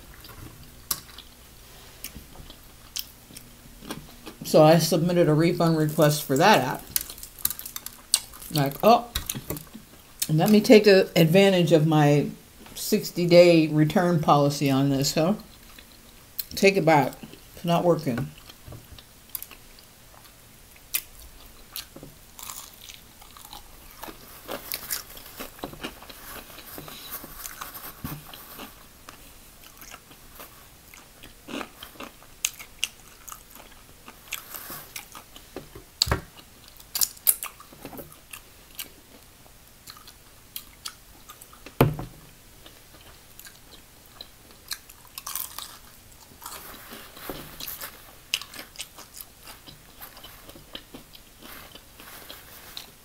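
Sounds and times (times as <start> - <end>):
quiet chewing: 0.1 - 4.5, 15.4 - 16.6, 18.3 - 41.8, 42.6 - 53.0
crunching fried chicken: 5.8 - 9.7, 18.3 - 41.8, 42.6 - 53.0.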